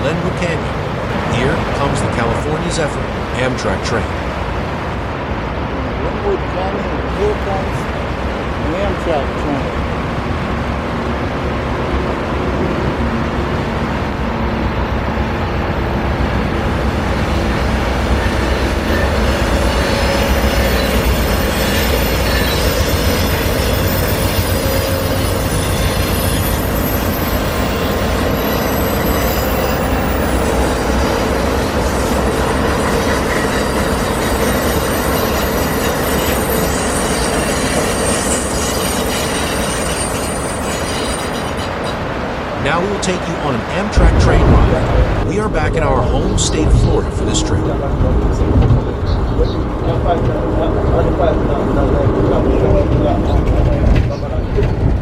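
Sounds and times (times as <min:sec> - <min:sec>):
passenger train rumbling past: 0:00.0 - 0:55.0
train wheel squeal: 0:18.1 - 0:42.1.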